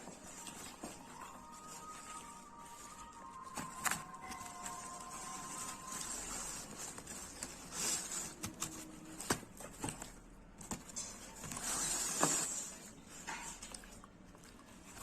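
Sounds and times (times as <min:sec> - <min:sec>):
chewing food: 0:00.0 - 0:04.9, 0:12.6 - 0:15.0.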